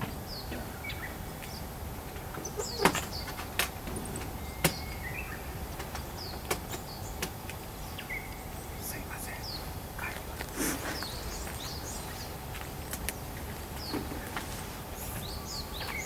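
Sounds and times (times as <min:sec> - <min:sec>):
outdoor background noise: 0:00.0 - 0:16.0
high bird chirps: 0:04.4 - 0:05.6.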